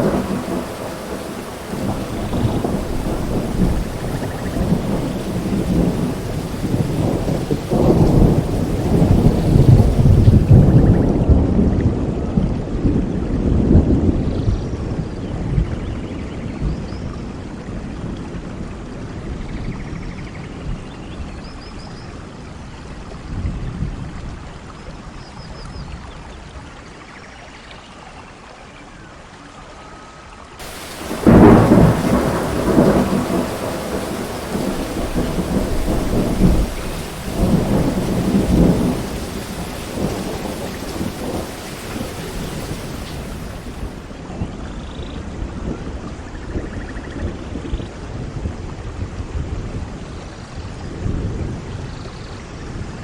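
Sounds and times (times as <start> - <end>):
distant thunder rumbling: 0.0 - 11.3, 30.6 - 44.1
rain falling: 0.0 - 11.3, 30.6 - 44.2
loud thunderclap: 0.0 - 11.4, 30.6 - 44.1.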